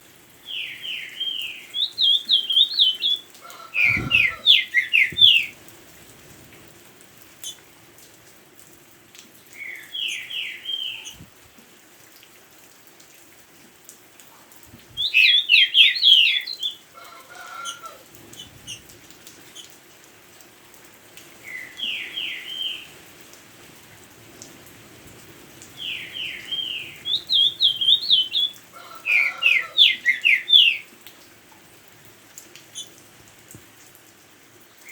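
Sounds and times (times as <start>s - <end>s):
faint rain: 0.0s - 34.9s
songbird singing: 0.4s - 5.6s, 7.4s - 7.6s, 9.5s - 11.3s, 15.0s - 19.7s, 21.4s - 22.9s, 25.8s - 30.9s, 32.7s - 33.0s.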